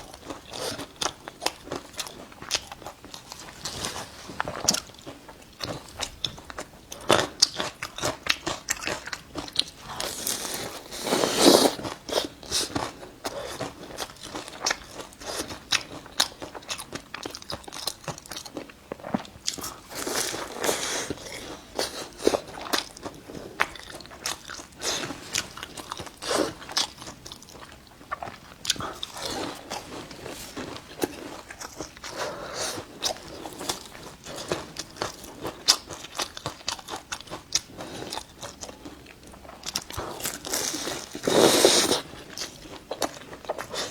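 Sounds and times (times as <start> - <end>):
pastry crunching while chewing: 0.0 - 43.9.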